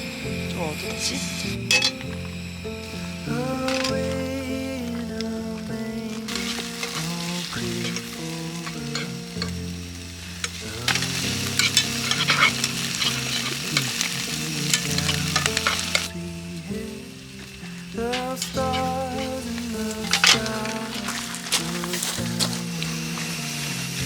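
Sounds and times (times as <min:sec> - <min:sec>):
food sizzling in a pan: 0:00.0 - 0:24.0
instrumental background music: 0:00.0 - 0:24.0.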